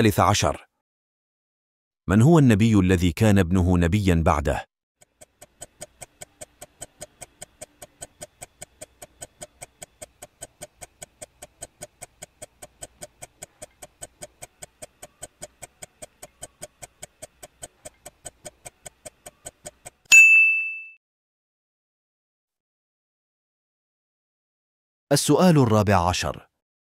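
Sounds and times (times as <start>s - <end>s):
countdown timer ticking: 5.0s - 20.1s.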